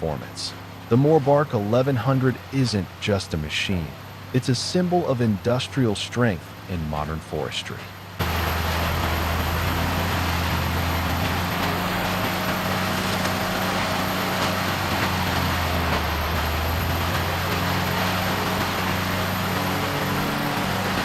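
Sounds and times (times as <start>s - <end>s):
diesel engine droning: 0.0s - 21.0s
grinding rush: 0.0s - 21.0s.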